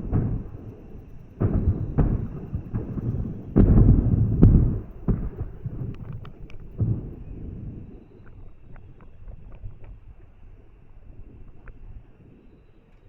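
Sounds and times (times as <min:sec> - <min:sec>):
rumbling echo: 0:00.0 - 0:08.1
fireworks booming: 0:00.0 - 0:08.4
faint crackles: 0:00.0 - 0:13.0.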